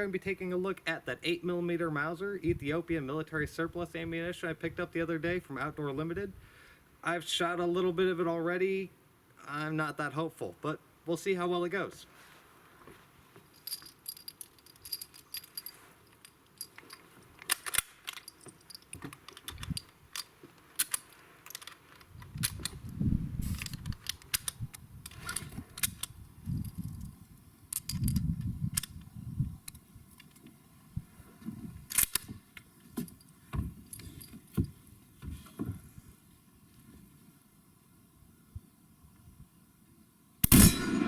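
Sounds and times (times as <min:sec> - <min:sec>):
rifle bolt metallic clicks: 0:16.6 - 0:22.8, 0:23.5 - 0:27.1, 0:31.9 - 0:32.7.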